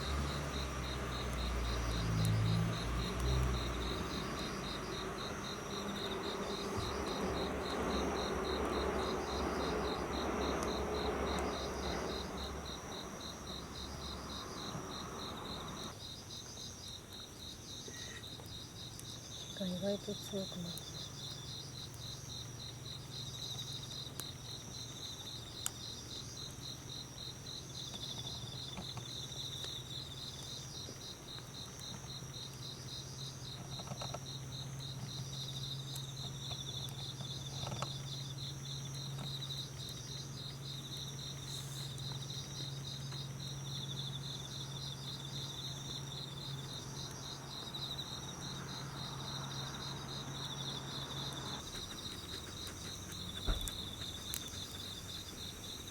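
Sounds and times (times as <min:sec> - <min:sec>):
crickets chirping: 0:00.0 - 0:55.9
wood fire crackling: 0:00.1 - 0:19.2, 0:50.8 - 0:55.9.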